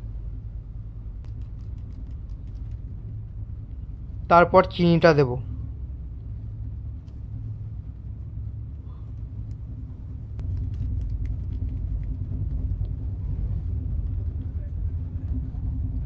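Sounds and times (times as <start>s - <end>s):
train rumble inside coach: 0.0s - 16.0s
faint small clicks: 1.2s - 2.9s.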